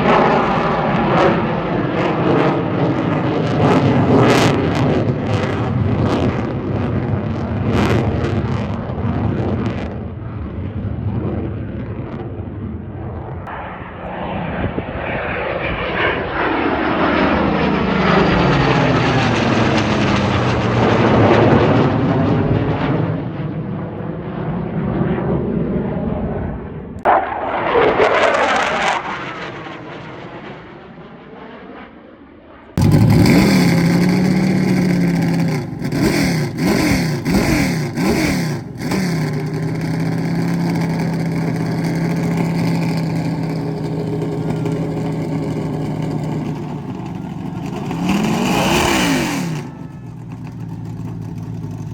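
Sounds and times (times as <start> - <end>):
engine with wavering pitch: 0.0 - 10.6, 11.2 - 29.5, 32.8 - 51.9
airplane passing low: 0.0 - 51.9.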